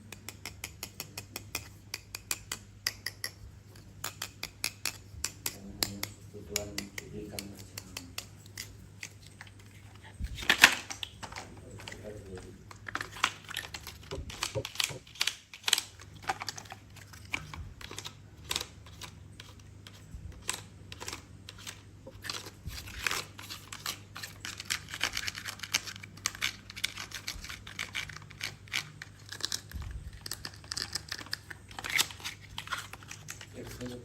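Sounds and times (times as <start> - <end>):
plastic toys clicking: 0.0 - 3.4, 10.4 - 34.0
faint low hum: 0.0 - 34.0
crinkly rustles: 15.9 - 34.0.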